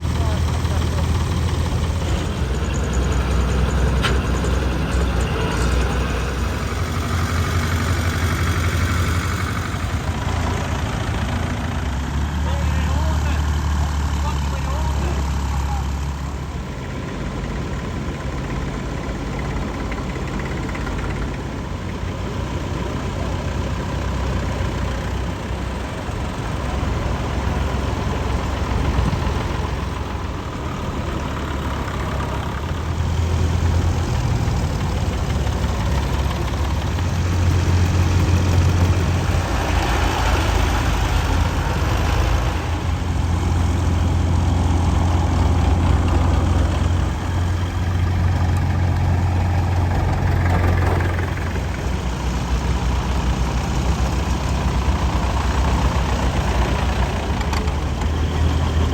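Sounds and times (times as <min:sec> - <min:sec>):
tractor engines idling: 0:00.0 - 0:58.9.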